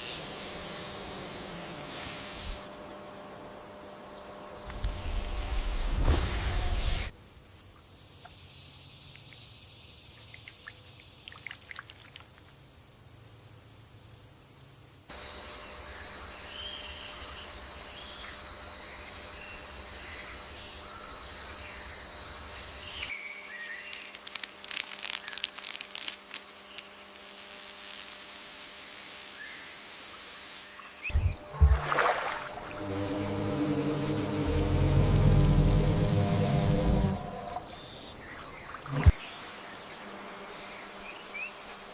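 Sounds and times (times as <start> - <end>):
steady hiss: 0.0 - 2.7
high-pitched buzzing tones: 31.1 - 38.0.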